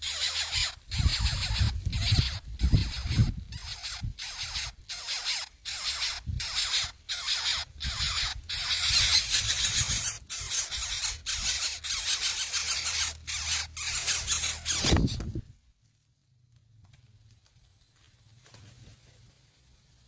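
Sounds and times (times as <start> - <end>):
nestlings begging calls: 0.0 - 15.4.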